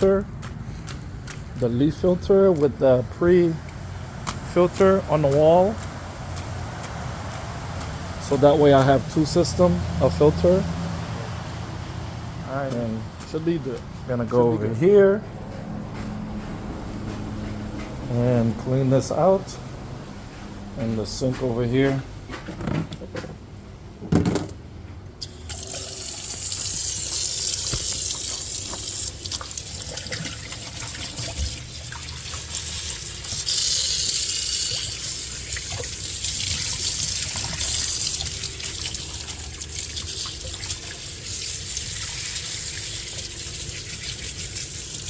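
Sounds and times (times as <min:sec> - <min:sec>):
water running from sink tap: 0:25.2 - 0:45.0.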